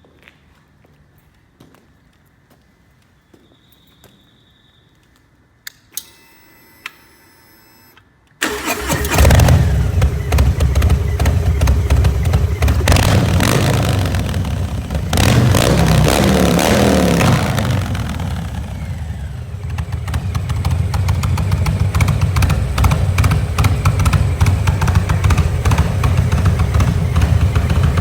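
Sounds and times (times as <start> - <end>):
motorcycle engine running: 8.4 - 28.0
motorcycle throttle blips: 8.4 - 28.0.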